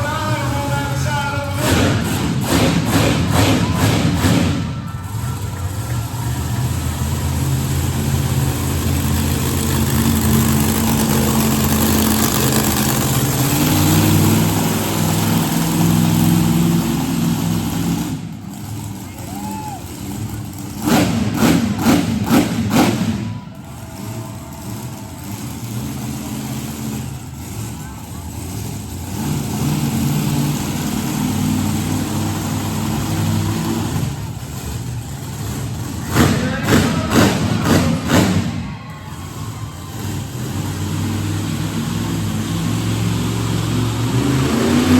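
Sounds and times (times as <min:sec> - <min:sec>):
truck engine revving: 0:00.0 - 0:44.9.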